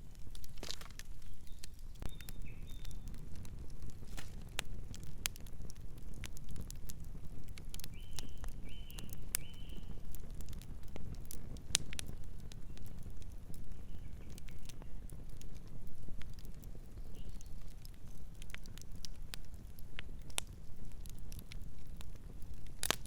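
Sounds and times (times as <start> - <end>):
campfire crackling: 0.0 - 23.0
bird chirping: 1.2 - 3.1, 8.0 - 9.9.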